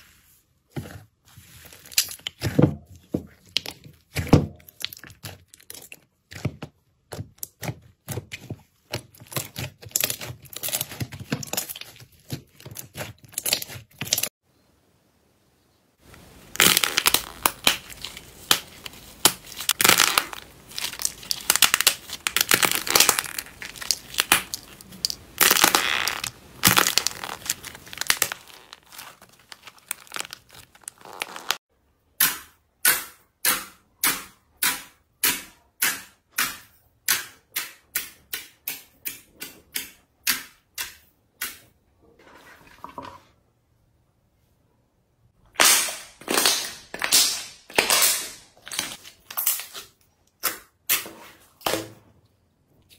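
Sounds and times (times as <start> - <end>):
slime crunchy crackling: 16.1 - 31.6.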